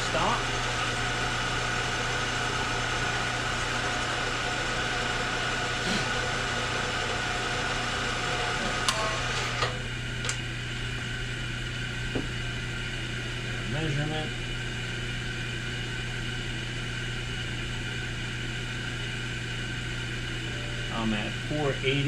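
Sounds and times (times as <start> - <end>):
machine tool hum and whine: 0.0 - 22.0.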